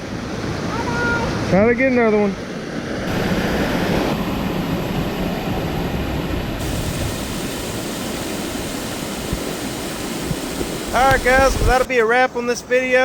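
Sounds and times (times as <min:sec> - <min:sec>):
river water rushing: 0:03.1 - 0:11.9
wind buffeting microphone: 0:03.1 - 0:11.9.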